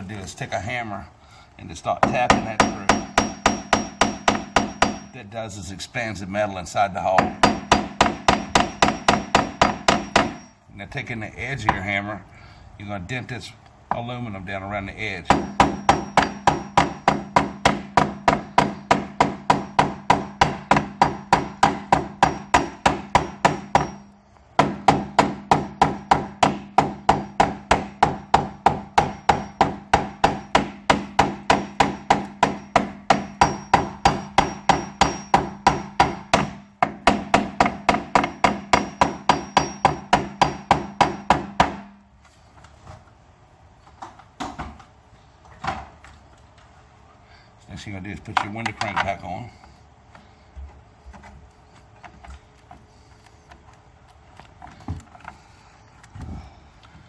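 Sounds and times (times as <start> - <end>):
hammer tapping on metal: 2.0 - 5.1, 7.2 - 10.5, 15.3 - 42.0.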